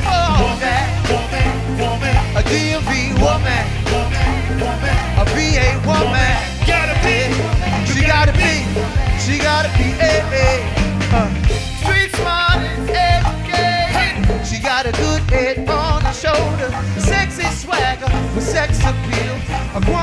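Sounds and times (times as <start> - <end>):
heavy bass line: 0.0 - 20.0
live band playing: 0.0 - 20.0.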